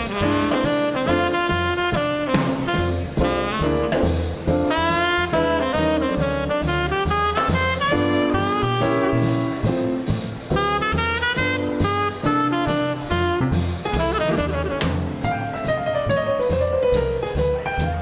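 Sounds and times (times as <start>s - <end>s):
saxophone-led horn line: 0.0s - 4.0s, 4.7s - 9.6s, 10.6s - 14.9s
drums: 0.0s - 18.0s
piano chords: 0.0s - 18.0s
walking bass line: 0.0s - 18.0s.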